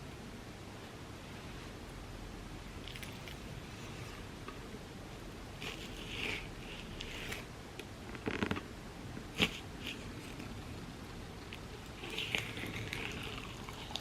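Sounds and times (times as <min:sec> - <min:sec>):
utensil scrapes and crackles: 0:05.6 - 0:07.5, 0:11.5 - 0:14.0.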